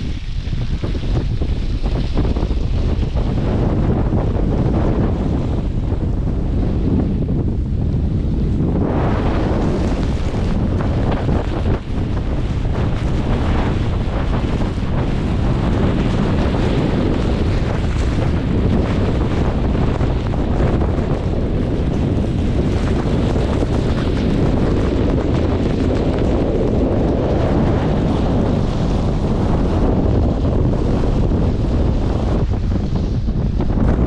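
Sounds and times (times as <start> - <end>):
strong wind blowing: 0.0 - 34.0.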